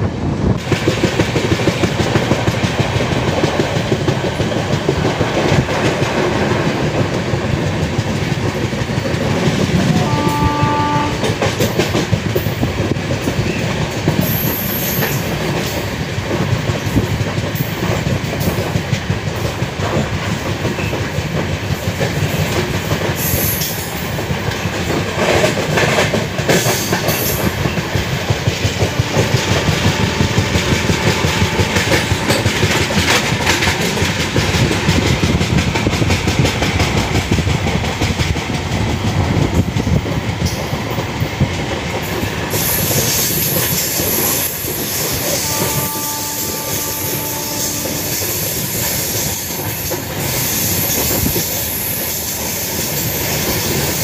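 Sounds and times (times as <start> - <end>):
train wheels clattering on rails: 0.0 - 54.0
train horn: 9.8 - 11.7, 28.8 - 32.9, 45.1 - 49.2.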